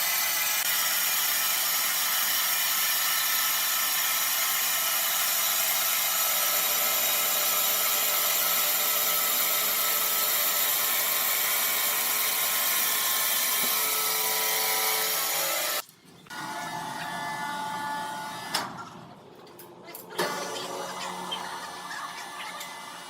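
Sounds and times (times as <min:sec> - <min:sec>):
power saw cutting wood: 0:00.0 - 0:19.0, 0:20.0 - 0:23.0.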